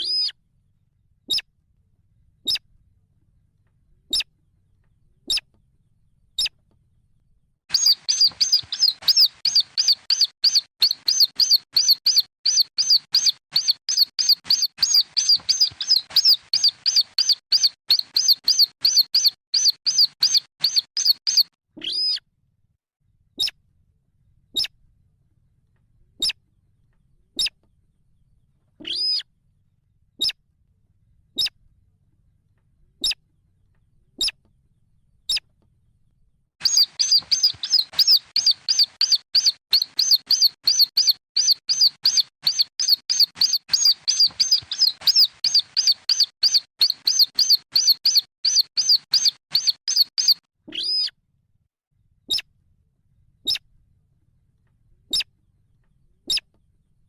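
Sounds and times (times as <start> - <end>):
bird chicks chirping: 0.0 - 0.3, 7.7 - 22.2, 36.6 - 51.1.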